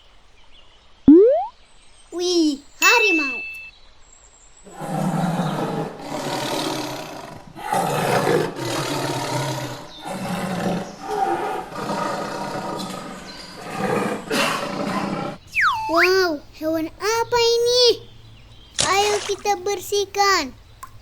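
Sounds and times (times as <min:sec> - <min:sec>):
tiger roaring: 0:04.7 - 0:15.4.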